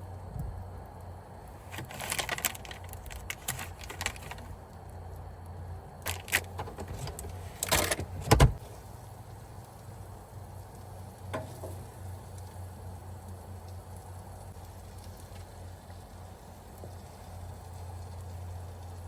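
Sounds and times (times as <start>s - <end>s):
low steady hum: 0.0s - 19.0s
hard objects rattling and clinking: 1.7s - 4.5s, 6.1s - 8.4s.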